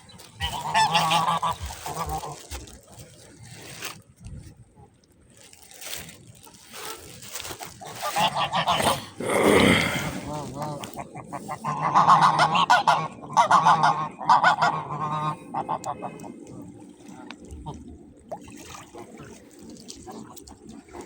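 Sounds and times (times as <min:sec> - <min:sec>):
waterfowl honking: 0:00.4 - 0:02.4, 0:07.9 - 0:09.0, 0:11.3 - 0:16.0.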